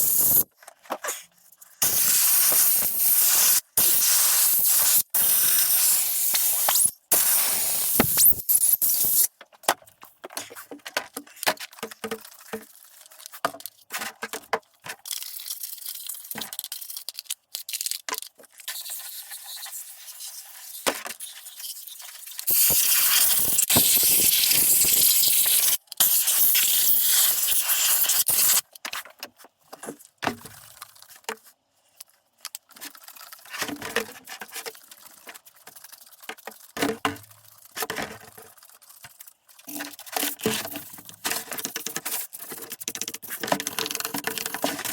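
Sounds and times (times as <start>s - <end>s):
loud hissing spray: 0.0s - 0.4s, 1.8s - 9.3s, 22.5s - 28.6s.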